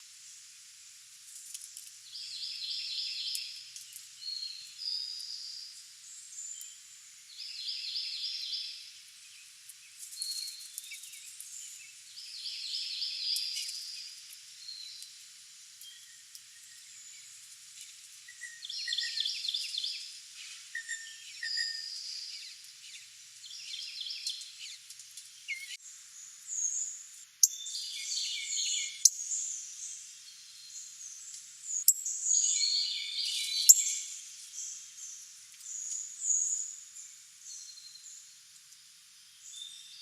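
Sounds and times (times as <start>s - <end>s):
songbirds singing and calling: 2.1s - 40.0s.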